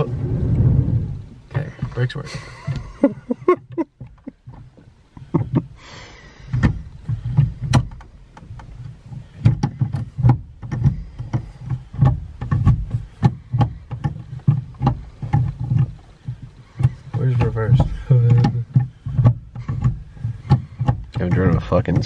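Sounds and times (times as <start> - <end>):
knocks and clicks: 1.6 - 5.8, 6.4 - 22.0.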